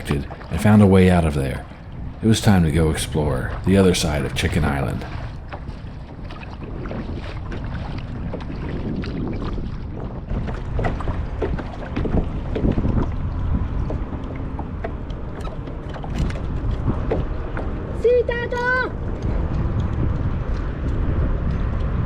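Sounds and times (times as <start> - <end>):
paddle splashing in water: 0.0 - 22.0
wind on microphone: 0.0 - 22.0.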